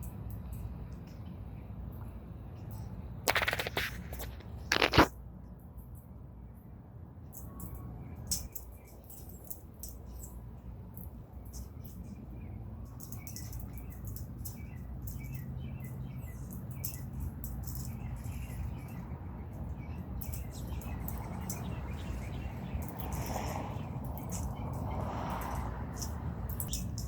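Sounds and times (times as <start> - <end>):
quick sharp clicks: 3.3 - 5.1
small birds chirping: 6.5 - 27.0.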